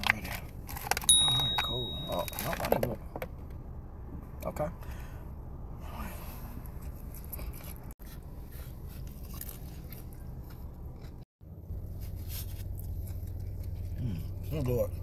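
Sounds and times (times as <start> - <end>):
person chewing food: 8.8 - 11.3, 12.6 - 14.5.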